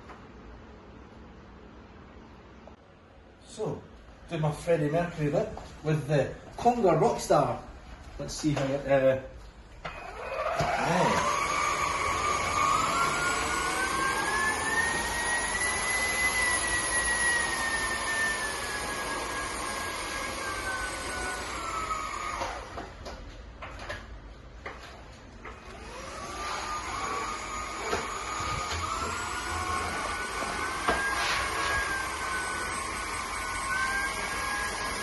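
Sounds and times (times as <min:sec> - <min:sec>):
cordless vacuum cleaner motor whining: 0:09.8 - 0:23.1, 0:25.4 - 0:35.0.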